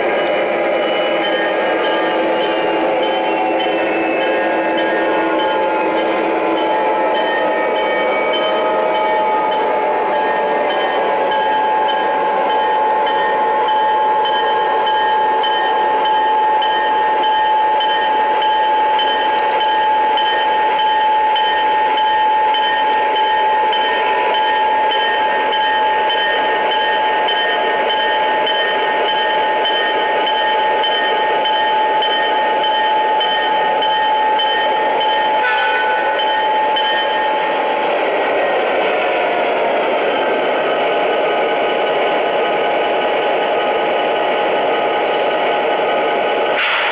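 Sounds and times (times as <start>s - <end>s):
wheel and track noise: 36.3s - 46.9s.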